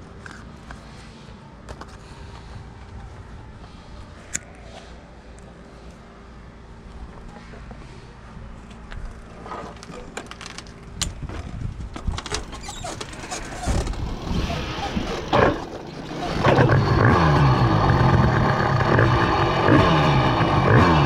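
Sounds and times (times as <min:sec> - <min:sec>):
clicking and rattling: 0:08.9 - 0:14.1
two-stroke engine running: 0:13.9 - 0:21.0.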